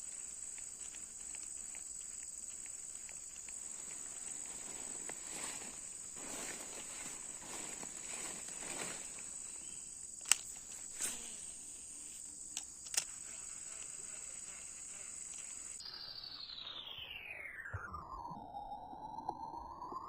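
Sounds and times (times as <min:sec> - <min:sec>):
sharp clicks: 0:00.0 - 0:04.4, 0:09.6 - 0:11.1, 0:12.5 - 0:14.0
insects droning: 0:00.0 - 0:20.0
falling electronic tone: 0:15.8 - 0:20.0.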